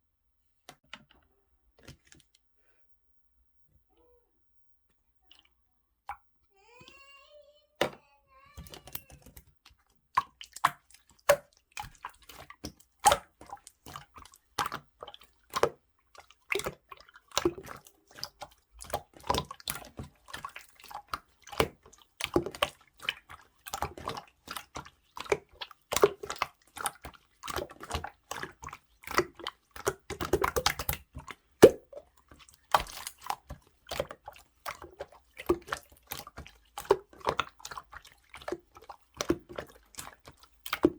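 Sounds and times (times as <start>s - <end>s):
slime squelching wet clicks: 8.6s - 40.9s.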